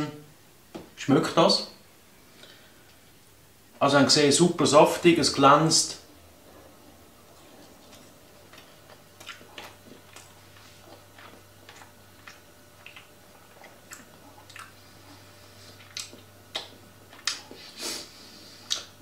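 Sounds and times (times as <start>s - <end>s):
faint low hum: 0.0s - 19.0s
person chewing: 6.6s - 19.0s.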